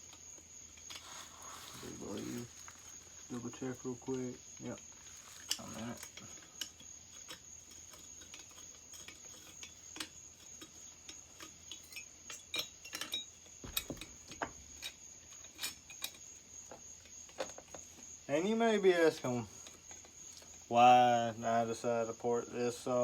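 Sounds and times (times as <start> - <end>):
metallic clicks of tools: 5.3 - 16.3.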